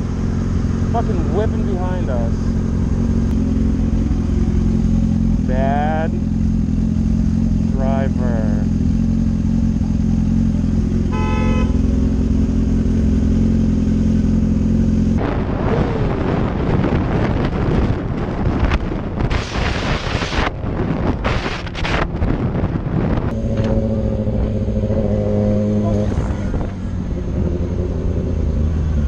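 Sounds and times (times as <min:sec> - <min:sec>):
rushing wind: 0:00.0 - 0:07.6, 0:10.5 - 0:29.0
motorcycle engine running: 0:00.0 - 0:17.7, 0:18.5 - 0:29.0
vehicle horn toot: 0:11.0 - 0:11.9.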